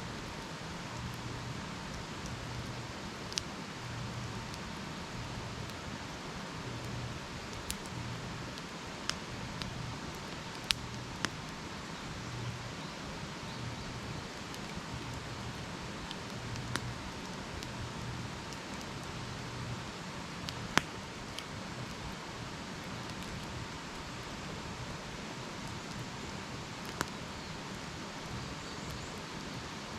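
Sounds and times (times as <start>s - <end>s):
campfire crackling and popping: 0.1s - 29.9s.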